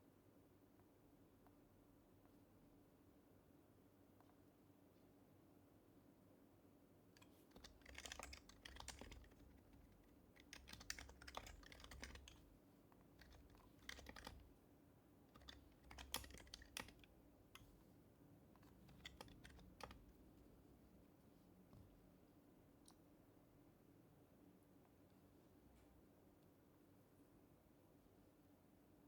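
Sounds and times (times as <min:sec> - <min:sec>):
keyboard typing: 0:07.2 - 0:12.5, 0:13.2 - 0:14.5, 0:15.3 - 0:17.8, 0:18.6 - 0:20.2.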